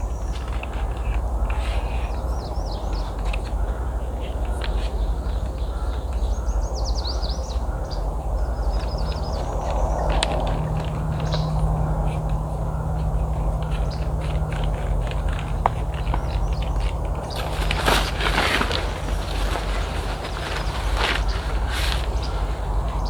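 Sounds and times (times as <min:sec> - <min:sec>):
songbird chirping: 0:04.5 - 0:23.0
low outdoor rumble: 0:08.0 - 0:23.0
clicks of gear being handled: 0:17.3 - 0:22.2.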